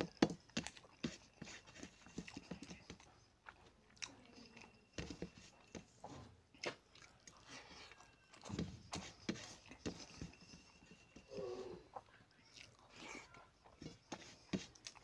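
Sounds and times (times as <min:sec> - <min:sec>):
person chewing with lip smacks: 0:06.5 - 0:08.5, 0:11.9 - 0:14.1, 0:14.7 - 0:15.0.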